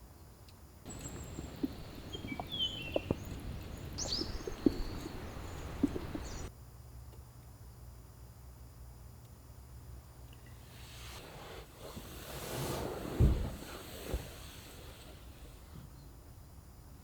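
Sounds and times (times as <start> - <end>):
birds chirping: 0.9 - 6.5
soft taps: 0.9 - 6.5
steady hiss: 0.9 - 6.5.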